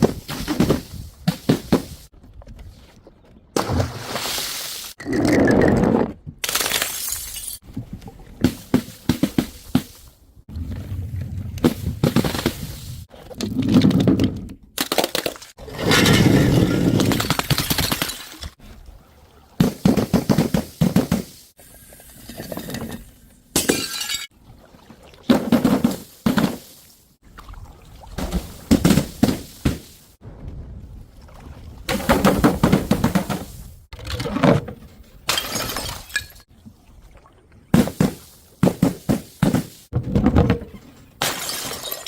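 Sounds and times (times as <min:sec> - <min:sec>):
thuds and crunching: 0:00.0 - 0:02.6, 0:11.6 - 0:12.9, 0:28.2 - 0:30.1, 0:31.9 - 0:33.7
glass bottles smashing: 0:06.6 - 0:07.6, 0:23.6 - 0:24.3, 0:35.3 - 0:36.5, 0:41.2 - 0:42.0.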